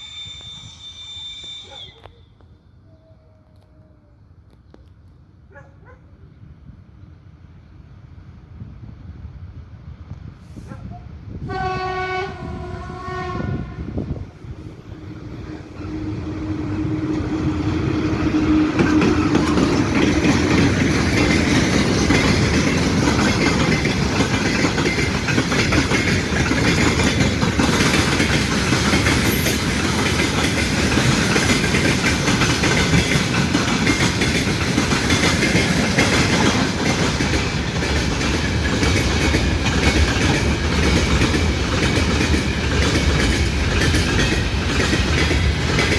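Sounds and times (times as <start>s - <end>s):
train horn: 0.0s - 3.0s, 11.4s - 14.3s, 15.8s - 19.5s
train rumbling past: 0.0s - 45.9s
wheels clacking on rail joints: 15.2s - 45.9s.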